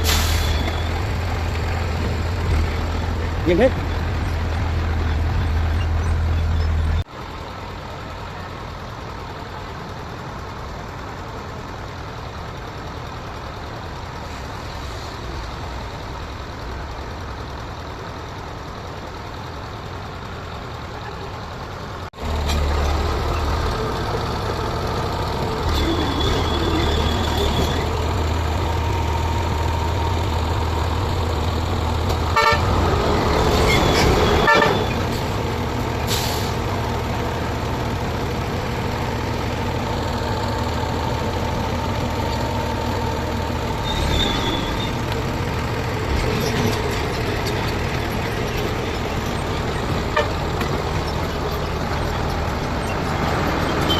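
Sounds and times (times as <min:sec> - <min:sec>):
heavy diesel engines running: 0:00.0 - 0:53.9
vehicle horn: 0:32.3 - 0:32.8, 0:34.1 - 0:35.0.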